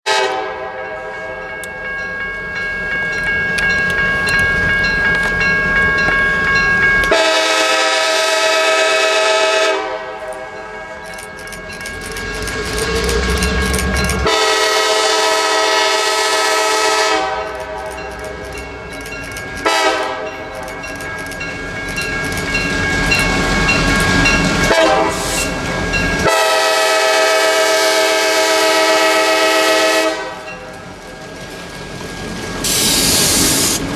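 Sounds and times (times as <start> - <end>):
train horn blasts: 0.0 - 1.6, 7.0 - 11.2, 12.0 - 17.9, 19.6 - 20.4, 24.4 - 30.7
locomotive rumble: 0.9 - 33.9
wheels clacking on rail joints: 1.5 - 7.8, 10.2 - 15.0, 16.4 - 26.4.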